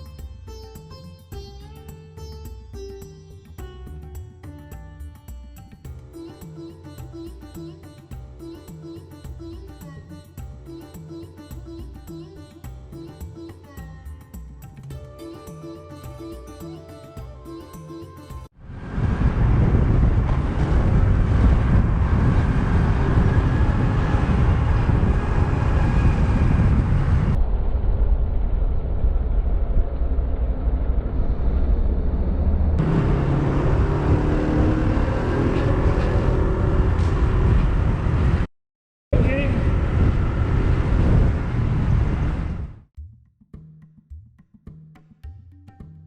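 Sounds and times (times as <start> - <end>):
car road and engine rumble: 18.7 - 38.5, 39.2 - 42.7.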